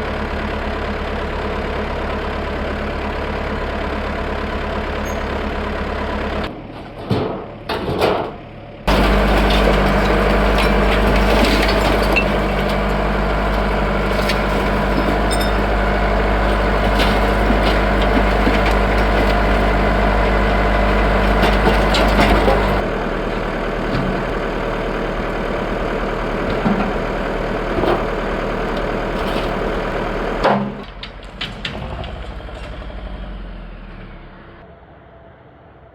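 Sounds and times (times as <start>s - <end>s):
diesel engine running: 0.0s - 35.6s
sharp clanks and knocks: 6.4s - 22.8s, 26.4s - 27.1s, 27.7s - 32.9s.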